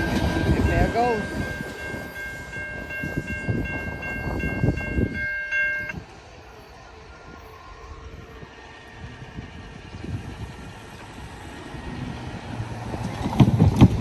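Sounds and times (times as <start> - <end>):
level crossing bell dinging: 0.0 - 6.0
train rumble and wheel clatter: 0.0 - 14.0.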